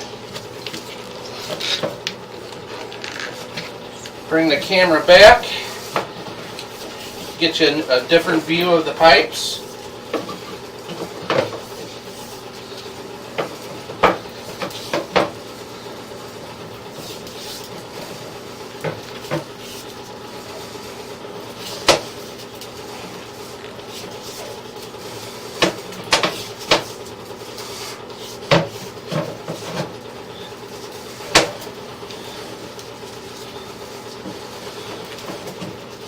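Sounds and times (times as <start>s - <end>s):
steady hum: 0.0s - 36.0s.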